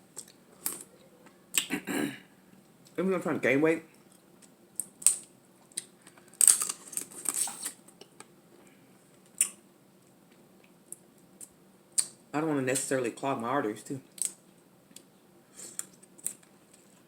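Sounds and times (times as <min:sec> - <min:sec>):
crab shell crunching while eating: 0:04.0 - 0:08.3, 0:14.1 - 0:17.0.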